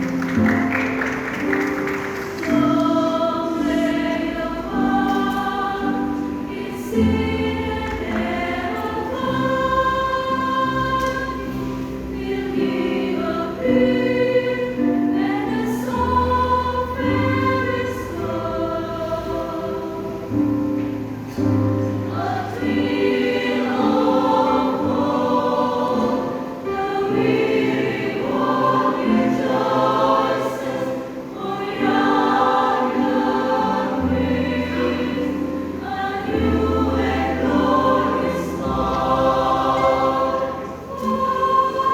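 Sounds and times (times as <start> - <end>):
choir singing gospel: 0.0 - 41.9.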